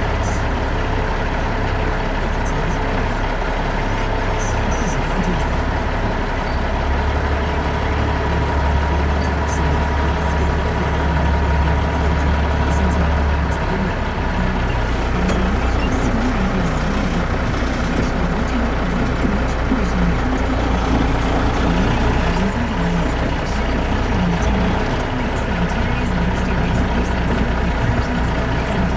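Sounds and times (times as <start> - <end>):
heavy truck engine and road noise: 0.0 - 28.9.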